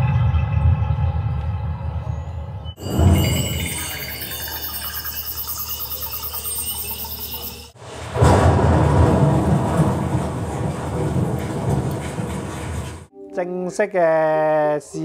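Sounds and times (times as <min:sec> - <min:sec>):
high insect-like chirping: 0:02.8 - 0:07.8
deep thunder-like rumble: 0:07.8 - 0:13.1.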